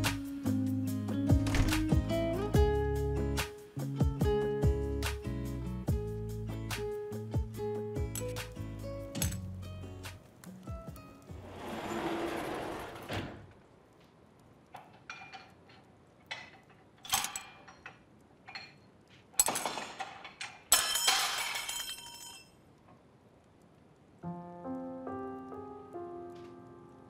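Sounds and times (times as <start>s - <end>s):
knocks and clinks: 14.8s - 22.6s
soft piano notes: 24.2s - 27.0s.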